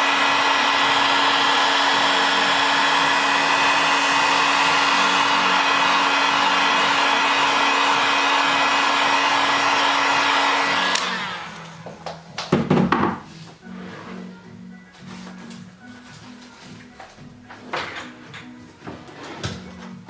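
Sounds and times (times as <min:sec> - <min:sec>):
hot-air blower running: 0:00.0 - 0:12.2.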